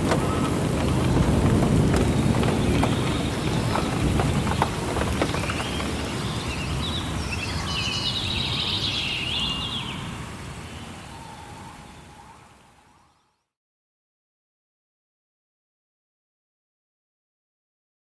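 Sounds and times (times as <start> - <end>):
rain-like noise: 0.0 - 13.4
birds chirping: 0.0 - 13.5.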